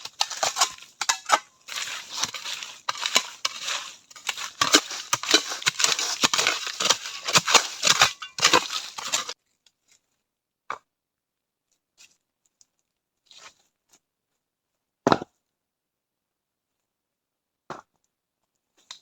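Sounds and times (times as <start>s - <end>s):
rough tearing and crunching: 0.0s - 9.4s.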